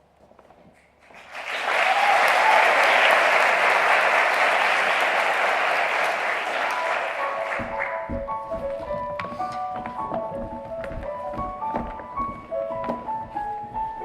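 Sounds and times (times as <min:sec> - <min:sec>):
audience applauding: 0:01.0 - 0:08.1.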